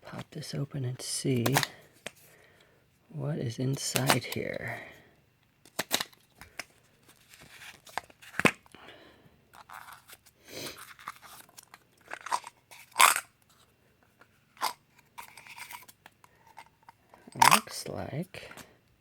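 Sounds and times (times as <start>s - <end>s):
plastic clicks and crackling: 5.6s - 6.7s.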